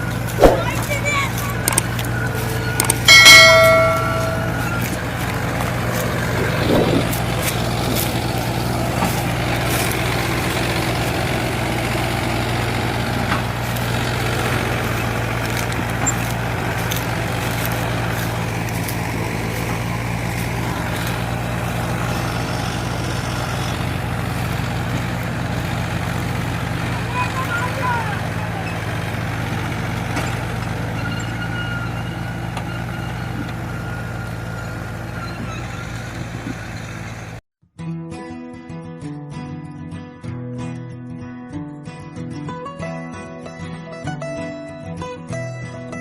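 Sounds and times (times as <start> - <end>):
heavy vehicle engine running: 0.0 - 37.4
loud pitched tone: 0.4 - 5.0.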